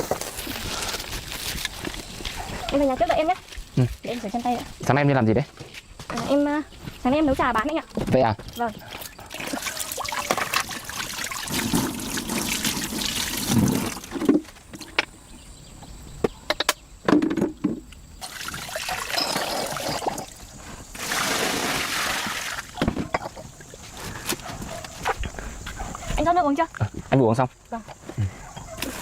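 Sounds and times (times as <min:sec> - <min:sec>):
water running and splashing: 0:09.1 - 0:14.3, 0:18.2 - 0:22.8.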